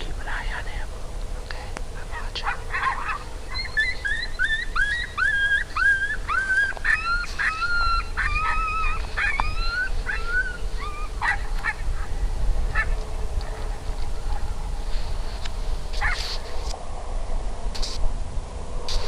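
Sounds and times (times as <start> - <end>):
low rumble: 0.0 - 19.0
dog yelping: 2.4 - 11.9, 12.8 - 13.0, 16.0 - 16.3.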